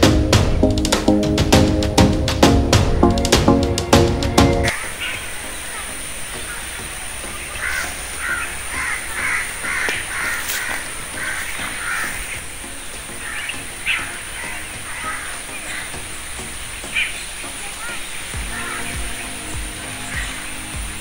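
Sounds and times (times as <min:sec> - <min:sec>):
harsh bird calls: 0:04.6 - 0:21.0.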